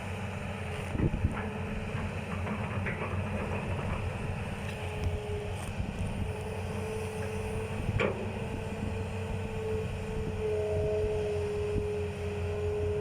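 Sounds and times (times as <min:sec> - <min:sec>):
excavator diesel engine under load: 0:00.0 - 0:13.0
hydraulic whine: 0:00.6 - 0:13.0.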